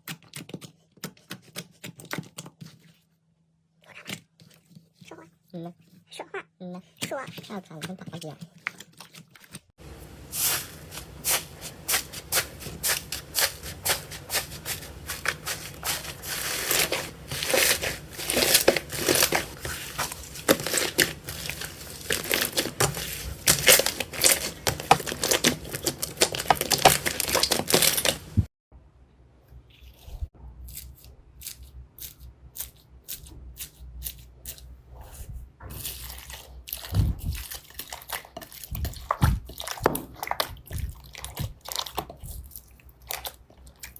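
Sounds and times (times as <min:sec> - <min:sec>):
slime crackling and popping: 0:11.1 - 0:28.4.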